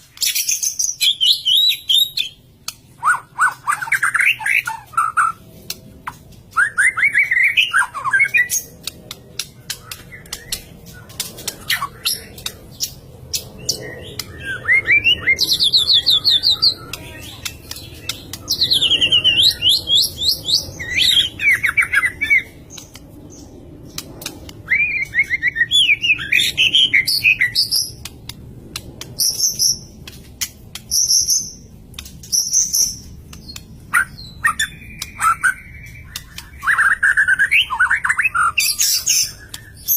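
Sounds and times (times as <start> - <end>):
bird singing whistled song: 0.2 - 2.4, 3.0 - 5.4, 6.5 - 8.8, 9.4 - 23.5, 24.6 - 28.0, 32.2 - 39.9
sharp clicks: 8.5 - 14.4, 16.8 - 18.6, 23.9 - 24.6, 27.8 - 33.8, 35.8 - 36.6.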